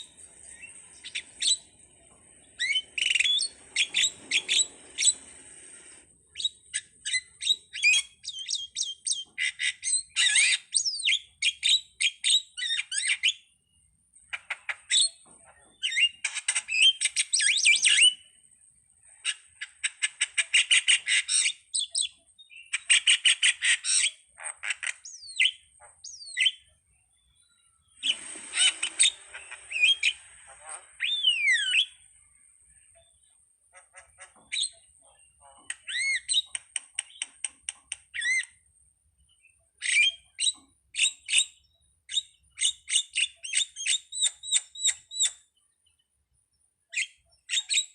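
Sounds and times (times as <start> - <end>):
starling chattering and whistling: 0.0 - 11.6, 27.9 - 32.2, 33.9 - 37.5, 38.2 - 38.6.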